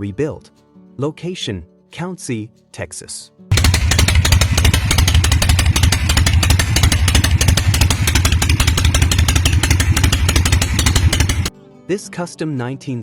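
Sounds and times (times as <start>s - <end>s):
motorcycle engine running loudly: 3.5s - 11.5s.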